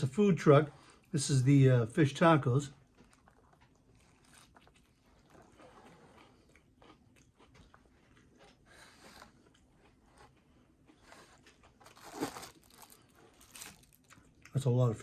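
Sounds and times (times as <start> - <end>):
person biting and chewing food: 2.8 - 14.6.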